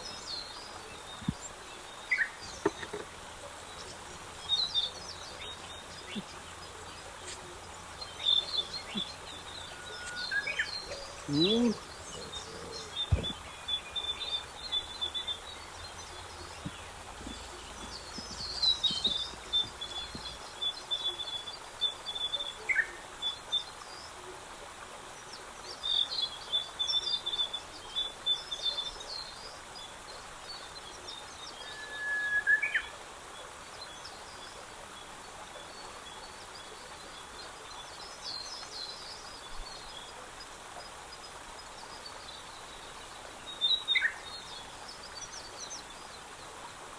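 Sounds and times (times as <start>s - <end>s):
small birds chirping: 0.0s - 22.3s
outdoor background hiss: 0.0s - 46.9s
whistled bird note: 31.6s - 32.7s.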